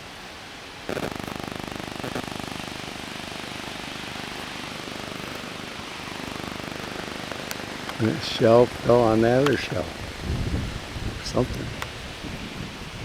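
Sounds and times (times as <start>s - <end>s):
engine running steadily: 0.0s - 10.2s.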